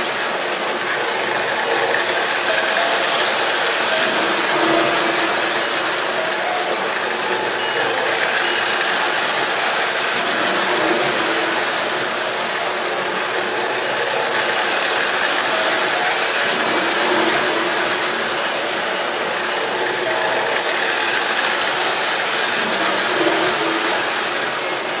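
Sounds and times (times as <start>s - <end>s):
train mechanical whir and rattle: 0.0s - 25.0s.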